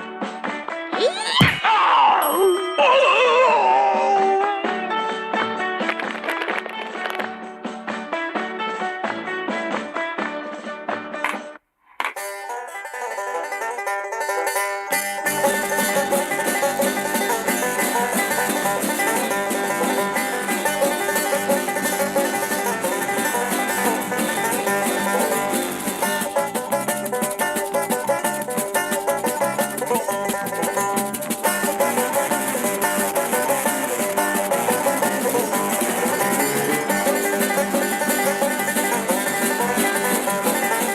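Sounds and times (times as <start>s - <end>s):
bluegrass banjo music: 0.0s - 1.0s, 2.9s - 40.9s
bass line: 15.2s - 40.8s.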